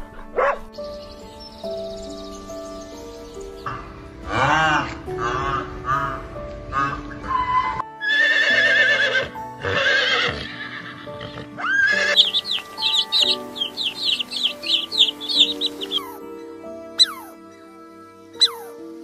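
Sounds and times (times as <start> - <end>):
soft background music: 0.0 - 19.0
horse whinnying: 7.4 - 12.4
baby chicks peeping: 12.1 - 16.2, 17.0 - 17.3, 18.4 - 18.7.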